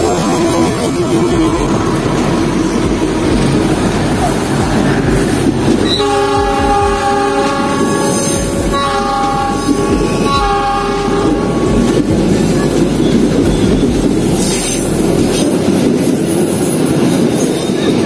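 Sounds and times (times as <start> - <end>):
train coaches rumbling past: 0.0 - 18.0
train horn: 5.8 - 15.0.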